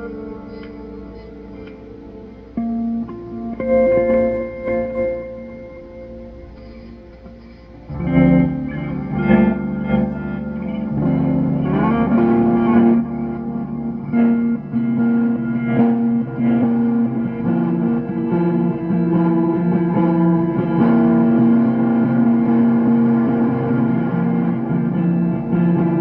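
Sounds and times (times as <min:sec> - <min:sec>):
ambient effects-laden guitar: 0:00.0 - 0:26.0.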